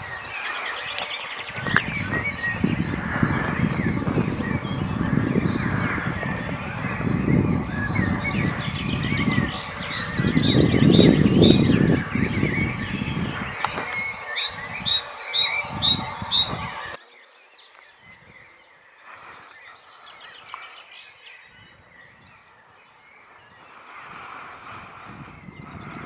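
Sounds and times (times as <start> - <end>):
low pulsing sounds: 0.0 - 16.8
high bird chirps: 0.0 - 17.0
faint birdsong: 0.0 - 26.0.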